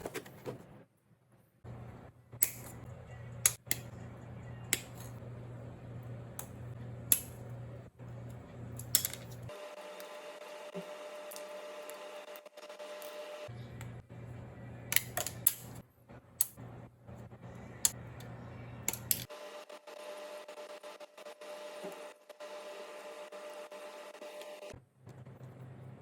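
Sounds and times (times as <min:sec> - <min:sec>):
steady low hum: 0:00.0 - 0:09.6, 0:13.0 - 0:26.0.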